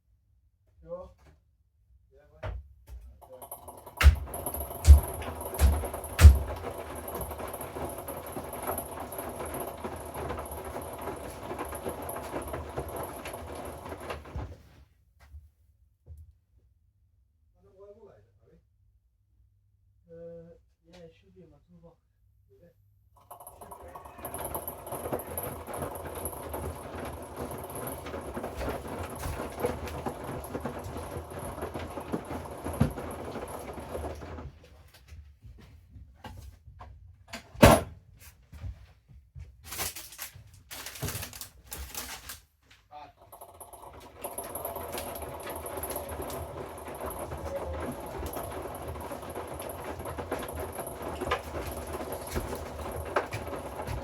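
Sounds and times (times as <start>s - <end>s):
washing machine drum rumbling: 3.3s - 14.7s, 23.2s - 34.6s, 43.4s - 54.0s
washing machine thump: 3.9s - 7.3s.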